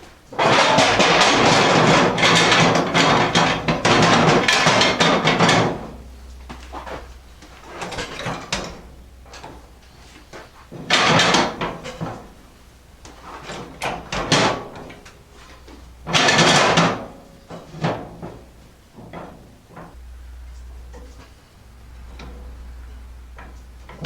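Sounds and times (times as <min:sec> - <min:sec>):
light knocks and clatter: 0:13.0 - 0:20.0.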